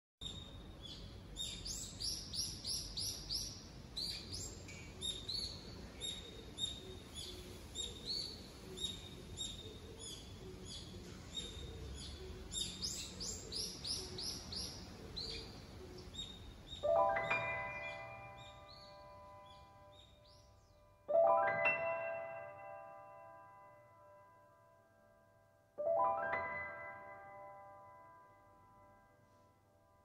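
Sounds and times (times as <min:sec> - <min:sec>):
small birds chirping: 0:00.2 - 0:20.8.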